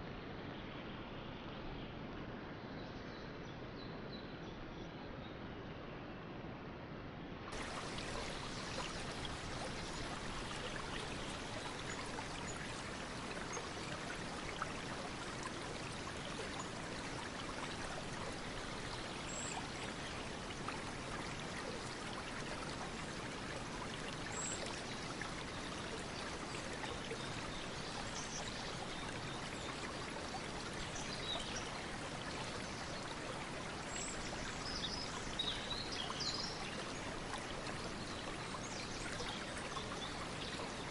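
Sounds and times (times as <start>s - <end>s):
stream water running: 7.5s - 40.9s.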